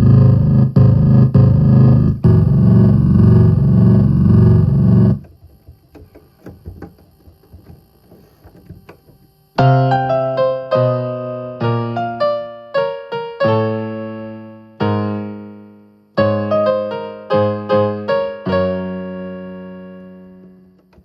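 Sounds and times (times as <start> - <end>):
loud held keyboard tone: 0.0 - 10.1
electric piano notes: 0.0 - 21.0.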